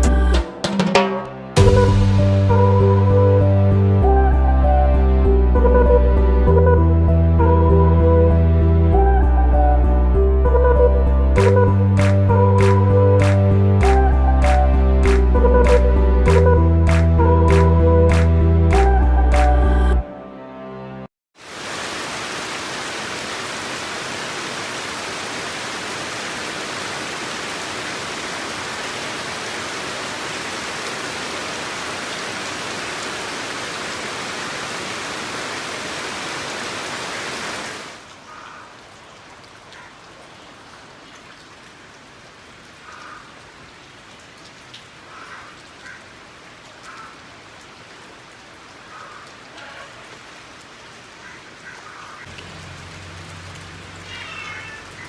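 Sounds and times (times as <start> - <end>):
heavy rain falling: 0.0 - 3.8, 11.4 - 18.8, 21.4 - 55.0.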